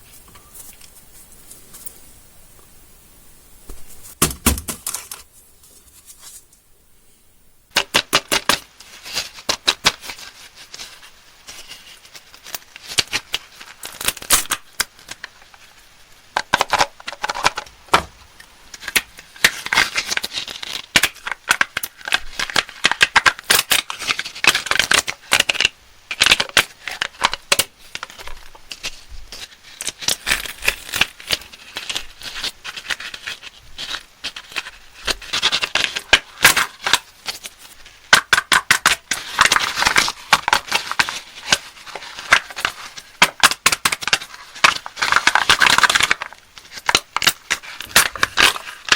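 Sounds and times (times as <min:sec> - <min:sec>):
candy wrappers crinkling and tearing: 0:08.3 - 0:15.8, 0:18.7 - 0:48.9.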